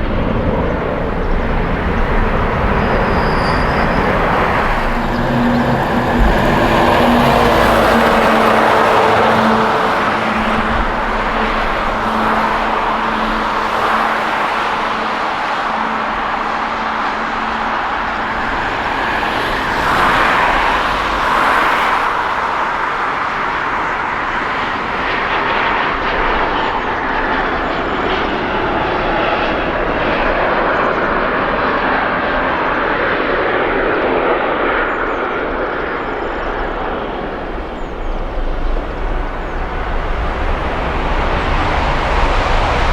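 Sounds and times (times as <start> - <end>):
low hum: 0.0 - 22.3
jet engines running: 0.0 - 42.9.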